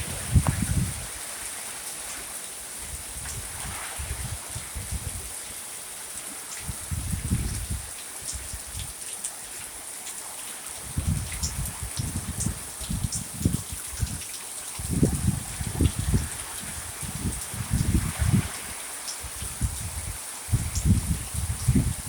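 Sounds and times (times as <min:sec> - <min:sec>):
wind buffeting microphone: 0:00.0 - 0:01.2, 0:02.9 - 0:05.3, 0:06.6 - 0:08.9, 0:10.8 - 0:14.2, 0:14.8 - 0:22.0
rain hissing: 0:00.0 - 0:22.0.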